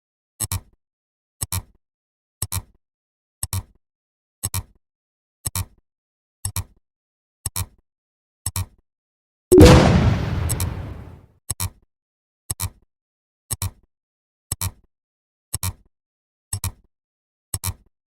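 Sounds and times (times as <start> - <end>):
sharp double click: 9.6 - 11.1
loud bang with rumble: 9.6 - 11.2.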